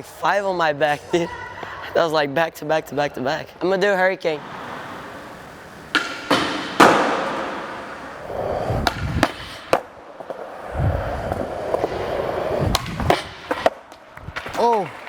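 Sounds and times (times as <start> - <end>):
skateboard slamming down: 4.4 - 9.9
skateboard clacking on concrete: 4.4 - 10.7, 11.3 - 15.0
skateboard wheels rolling: 4.4 - 15.0.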